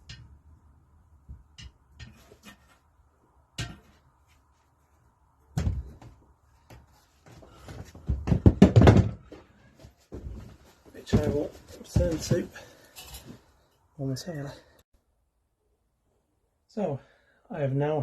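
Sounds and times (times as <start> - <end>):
metal tools clinking and knocking: 12.2 - 13.4.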